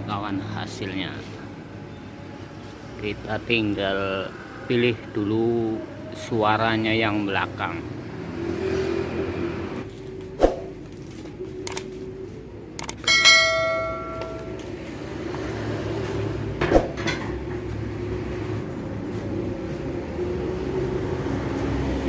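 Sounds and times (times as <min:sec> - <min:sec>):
light clicks: 0:11.6 - 0:11.9
loud metallic clang: 0:13.0 - 0:14.6.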